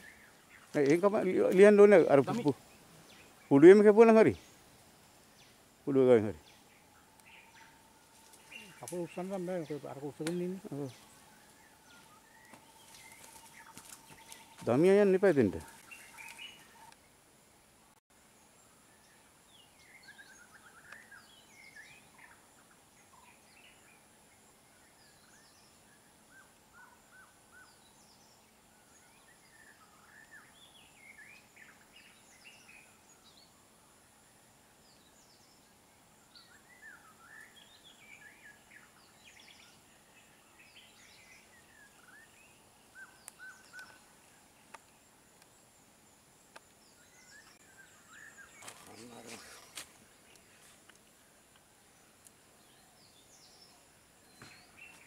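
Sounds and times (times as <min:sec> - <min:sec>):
faint bird chirps and whistles: 0:18.6 - 0:24.1, 0:34.9 - 0:44.3.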